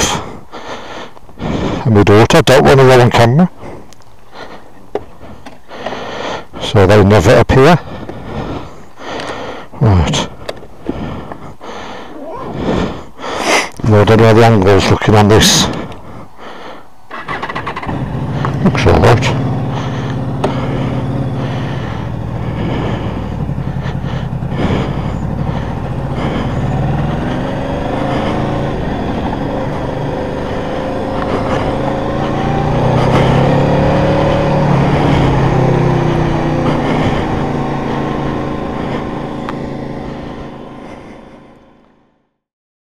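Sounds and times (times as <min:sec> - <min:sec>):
motorcycle engine accelerating: 0:00.0 - 0:03.8, 0:13.8 - 0:42.4.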